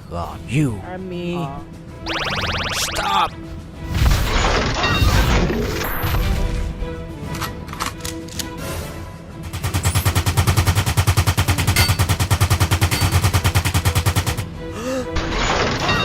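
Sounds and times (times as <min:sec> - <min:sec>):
background music: 0:00.0 - 0:16.0
machine-gun fire: 0:09.4 - 0:14.5.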